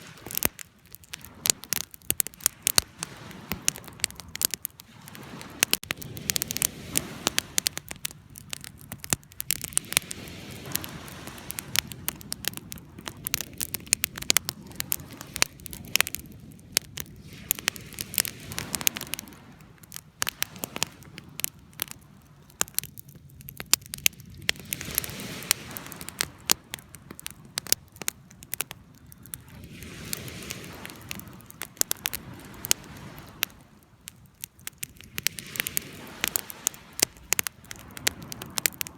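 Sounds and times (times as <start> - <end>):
campfire crackling and popping: 0.0 - 38.9
soft rushing of fire: 0.0 - 38.9.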